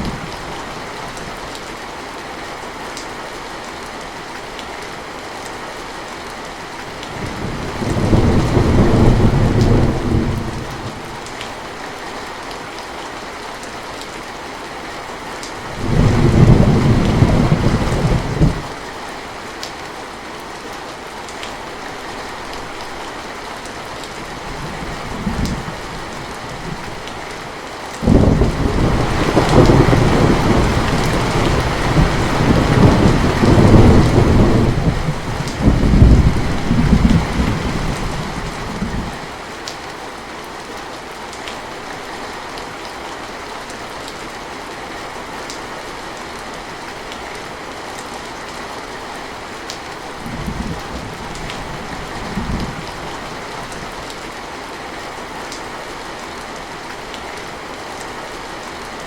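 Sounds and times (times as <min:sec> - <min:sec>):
rain falling: 0:00.0 - 0:59.0
thunder rumbling: 0:07.2 - 0:11.1, 0:15.7 - 0:18.7, 0:28.0 - 0:39.3.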